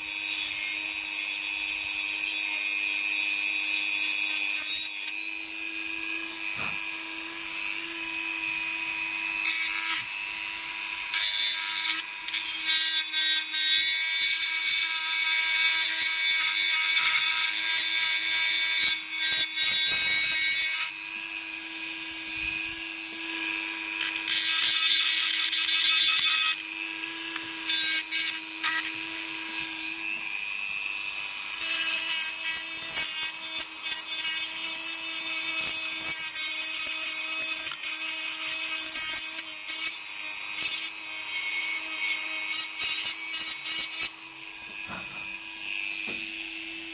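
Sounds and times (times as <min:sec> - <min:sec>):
power tool scraping metal: 0:00.0 - 0:46.9.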